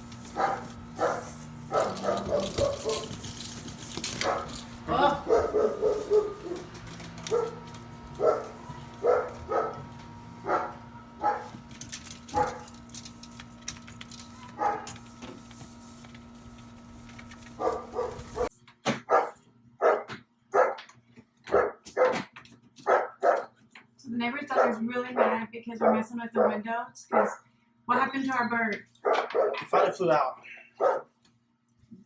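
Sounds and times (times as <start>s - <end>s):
steady hum: 0.0s - 18.5s
dog barking: 0.4s - 3.2s, 4.2s - 6.7s, 7.3s - 11.6s, 12.3s - 12.7s, 14.5s - 15.0s, 17.6s - 20.9s, 21.5s - 23.5s, 24.5s - 27.4s, 29.0s - 30.0s, 30.8s - 31.1s.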